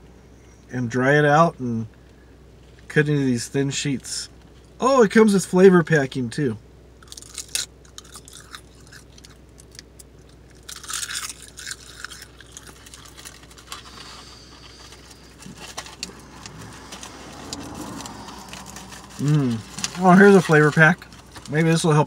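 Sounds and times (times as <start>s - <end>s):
chewing crisp seaweed: 7.0s - 21.5s
snack packet rustling: 10.4s - 21.6s.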